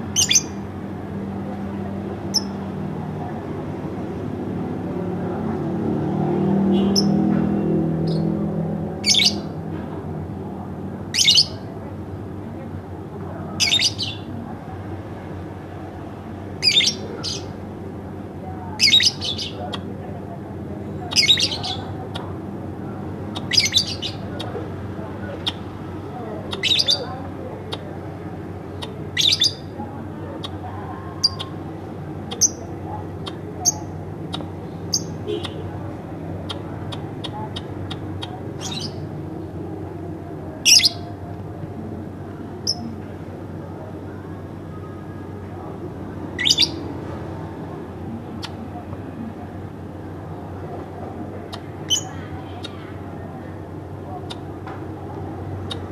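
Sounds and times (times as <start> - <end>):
lovebird chirping: 0.1 - 0.6, 13.6 - 14.3, 23.3 - 24.2, 26.5 - 27.1, 31.2 - 31.6, 38.6 - 39.0, 46.4 - 46.8.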